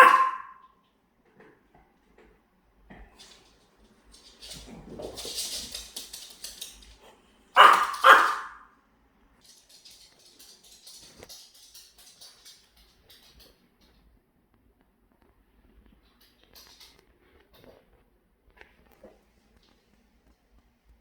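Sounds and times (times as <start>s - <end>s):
dog barking: 0.0s - 0.7s, 7.6s - 8.7s.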